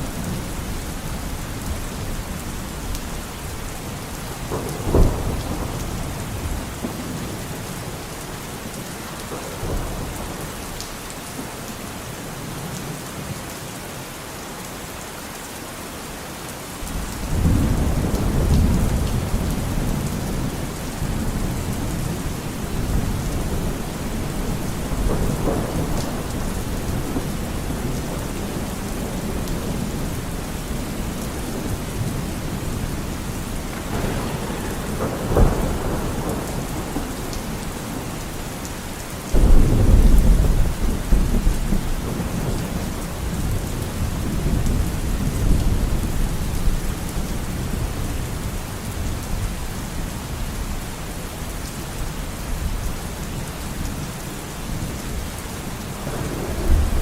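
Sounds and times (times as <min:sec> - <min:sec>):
steady rain: 0:00.0 - 0:57.0
thunder rumbling: 0:03.5 - 0:11.5, 0:16.8 - 0:48.0, 0:54.9 - 0:57.0
loud thunderclap: 0:04.3 - 0:08.0, 0:16.9 - 0:46.8, 0:56.0 - 0:57.0
sharp thunder crack: 0:32.2 - 0:38.6, 0:39.4 - 0:42.6, 0:56.0 - 0:57.0.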